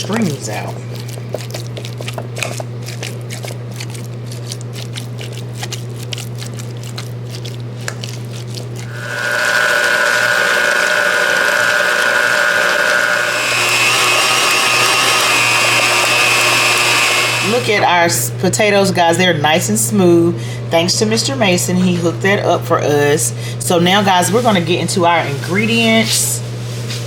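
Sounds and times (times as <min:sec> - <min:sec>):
potatoes being mashed in a bowl: 0:00.0 - 0:17.8
dishwasher humming: 0:08.7 - 0:26.2
electric mixer whining: 0:08.8 - 0:18.2.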